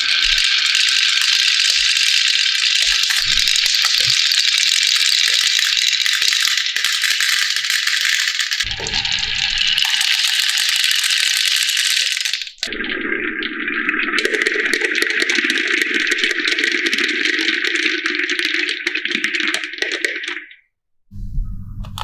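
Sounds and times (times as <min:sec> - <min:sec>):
marbles rattling down wooden run: 0:00.0 - 0:12.6
deeper rumble: 0:21.1 - 0:22.0.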